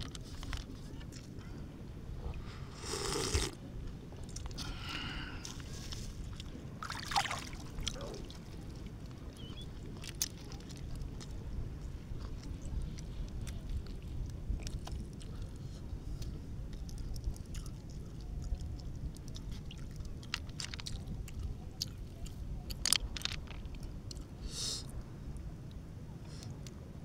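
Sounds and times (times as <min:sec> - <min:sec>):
man chewing: 0:02.8 - 0:03.6
small wet clicks: 0:07.1 - 0:15.6, 0:16.2 - 0:24.3.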